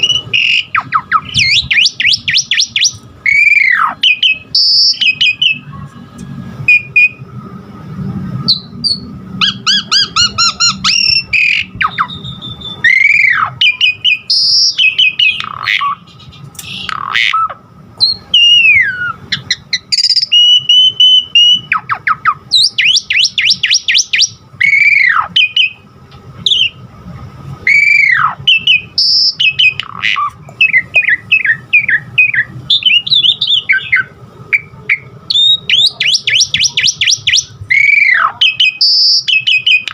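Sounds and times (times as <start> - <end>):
starling singing varied song: 8.5 - 25.8.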